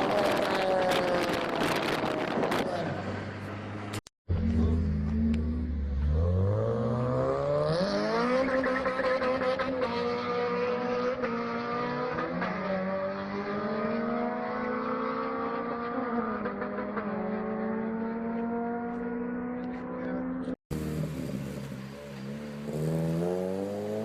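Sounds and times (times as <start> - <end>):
car engine revving: 4.3 - 24.0.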